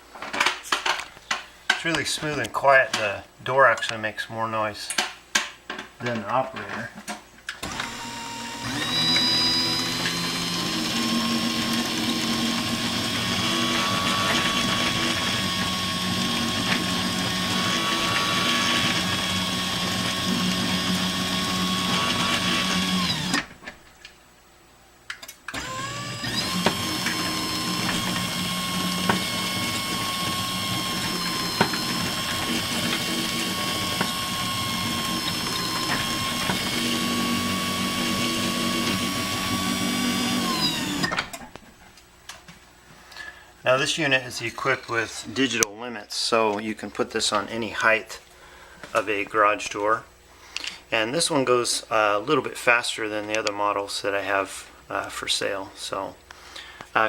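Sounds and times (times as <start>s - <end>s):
garage door opener motor whining: 7.6s - 23.6s, 25.5s - 41.5s.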